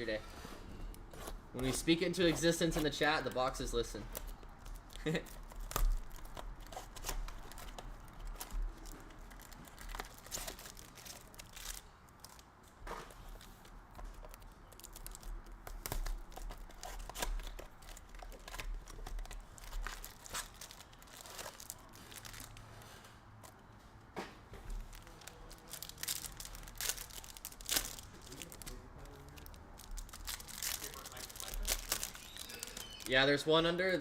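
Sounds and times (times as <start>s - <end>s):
wrappers crinkling: 0.0s - 23.6s, 24.7s - 33.6s
card packs torn open: 0.9s - 12.5s, 13.4s - 22.7s, 24.7s - 33.4s.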